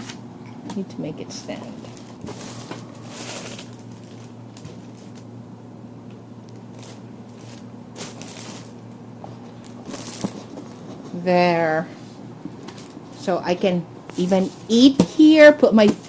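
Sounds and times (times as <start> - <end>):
steady low hum: 0.0 - 16.0
rustling and scraping of table: 9.4 - 11.3.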